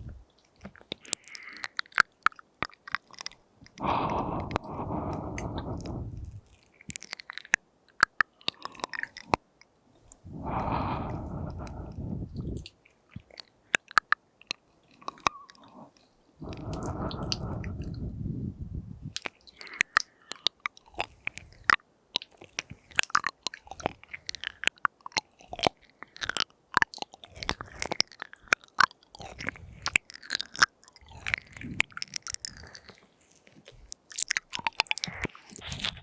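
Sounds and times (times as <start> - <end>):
small mouth pops: 0.0 - 9.4, 10.1 - 15.6, 16.4 - 36.0
tongue clicks: 0.0 - 9.4, 10.1 - 36.0
breathy blowing: 3.8 - 6.5, 10.2 - 12.7, 16.4 - 19.2
wet lip smacks: 16.4 - 18.2, 19.1 - 36.0.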